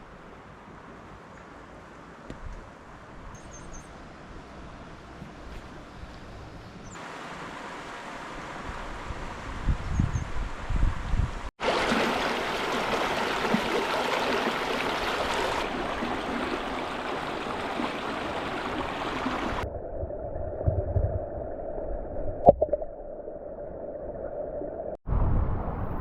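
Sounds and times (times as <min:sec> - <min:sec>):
stream rushing over rocks: 0:11.6 - 0:19.6.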